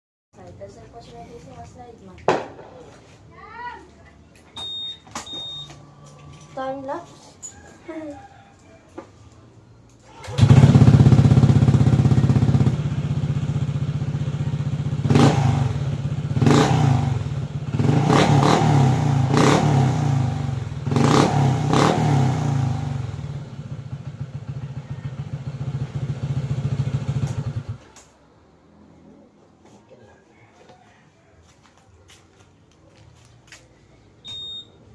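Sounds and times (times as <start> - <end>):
scooter engine idling and revving: 10.1 - 28.1.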